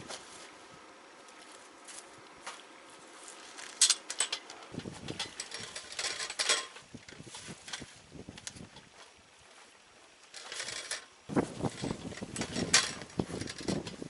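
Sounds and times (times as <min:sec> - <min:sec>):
wind buffeting microphone: 0:04.7 - 0:06.0, 0:06.8 - 0:09.0, 0:11.2 - 0:14.0.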